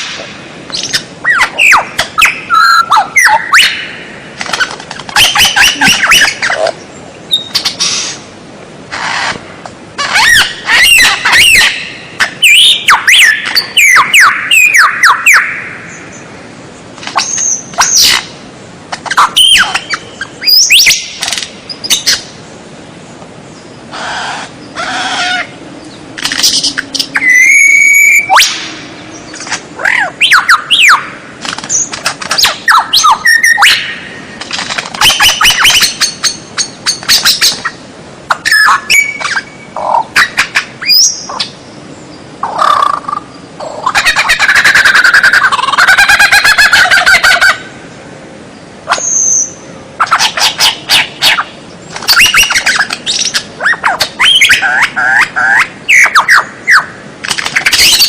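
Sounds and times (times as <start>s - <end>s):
songbird whistles and trills: 0.0s - 6.6s, 7.3s - 8.2s, 10.0s - 16.2s, 19.0s - 22.2s, 26.2s - 34.0s, 35.0s - 41.5s, 48.9s - 56.9s.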